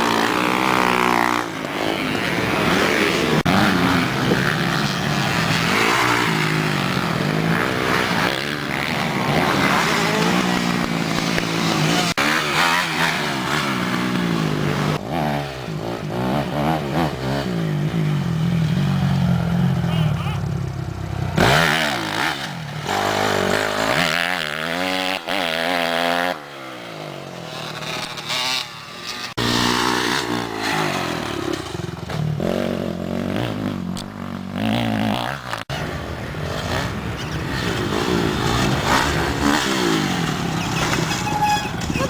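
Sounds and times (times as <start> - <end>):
motorbike engine revving: 0.0 - 42.0.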